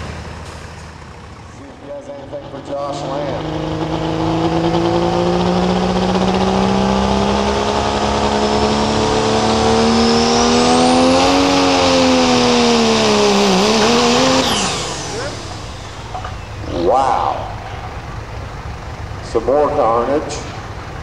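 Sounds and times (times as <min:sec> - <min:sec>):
diesel engine at full throttle: 0:00.0 - 0:21.0.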